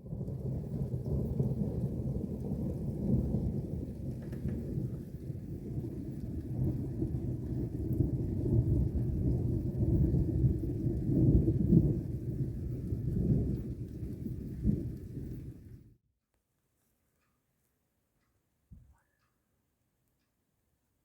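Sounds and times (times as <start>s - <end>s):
sharp thunder clap: 0.0s - 15.6s
thunder rumbling: 0.0s - 16.0s.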